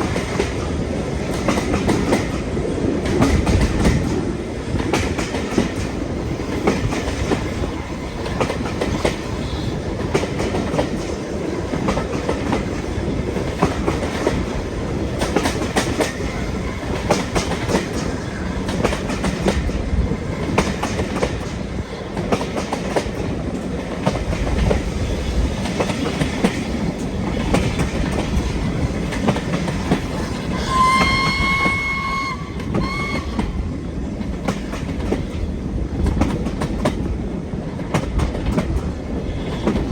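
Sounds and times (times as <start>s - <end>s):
train clickety-clack over rail joints: 0.0s - 39.9s
steam locomotive whistle: 30.5s - 33.8s.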